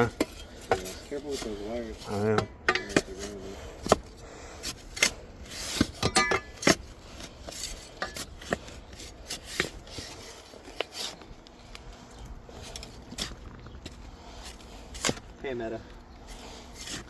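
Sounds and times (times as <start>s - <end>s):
shovel scraping through dirt: 4.6s - 11.3s, 12.5s - 17.0s.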